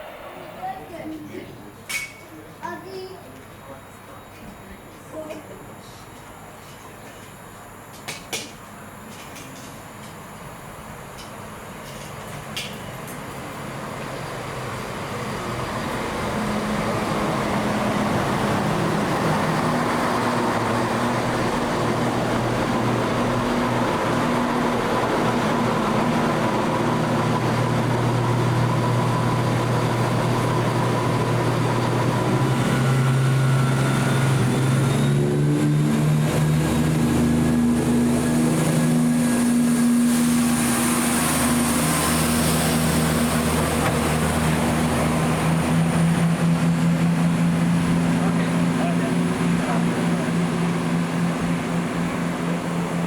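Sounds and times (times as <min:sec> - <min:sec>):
high whine: 0:00.0 - 0:02.3, 0:15.4 - 0:53.0
train engine drone: 0:00.0 - 0:53.0.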